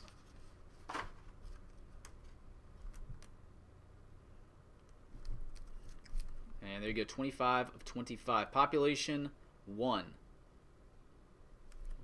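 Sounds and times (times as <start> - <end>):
trading cards rustling: 5.2 - 6.6.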